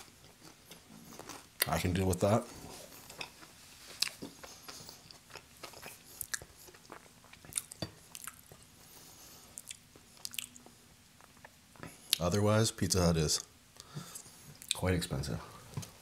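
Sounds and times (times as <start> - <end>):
person chewing food: 0.0 - 1.7, 2.5 - 12.2.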